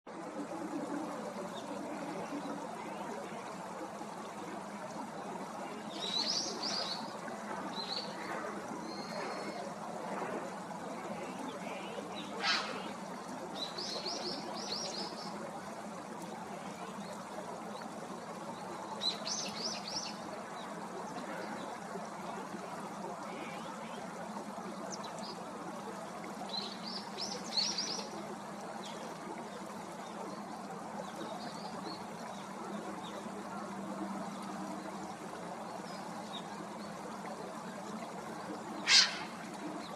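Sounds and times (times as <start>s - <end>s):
steady background hiss: 0.1s - 39.9s
small birds calling: 12.4s - 12.9s, 38.8s - 39.5s.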